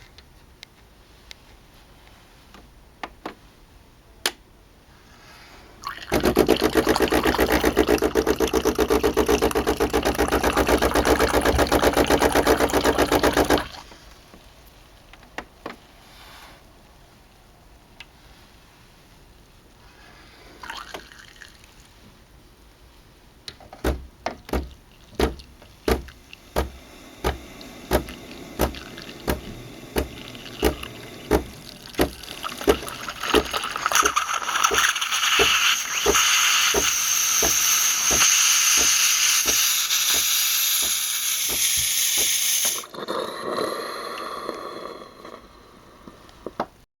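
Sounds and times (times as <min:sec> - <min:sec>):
liquid pouring hiss: 0:05.8 - 0:14.1, 0:20.5 - 0:22.0, 0:24.7 - 0:46.1
espresso machine pump thumping: 0:06.1 - 0:13.8, 0:23.7 - 0:42.9.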